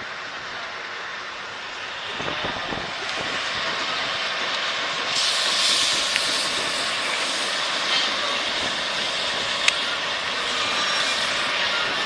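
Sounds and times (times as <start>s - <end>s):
train running noise: 0.0s - 12.0s
loud air hiss: 4.9s - 12.0s.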